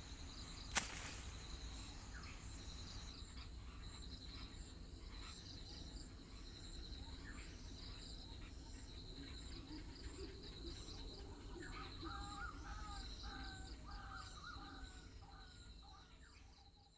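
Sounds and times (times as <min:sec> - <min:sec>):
insects chirping: 0:00.0 - 0:04.6.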